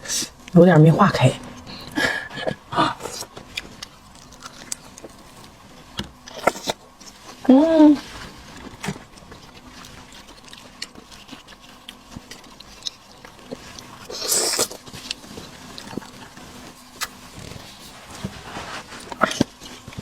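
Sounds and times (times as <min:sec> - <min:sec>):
wet chewing and sucking: 0:03.0 - 0:05.5, 0:09.0 - 0:20.0.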